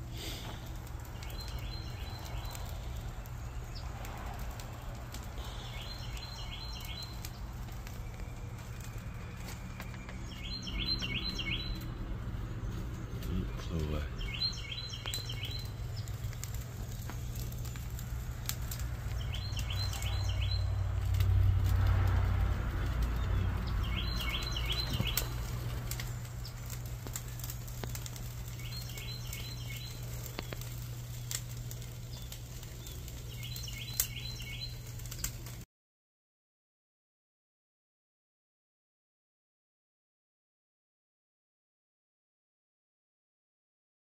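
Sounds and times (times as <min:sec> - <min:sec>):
steady low rumble: 0:00.0 - 0:33.7
wood fire crackling: 0:00.0 - 0:35.7.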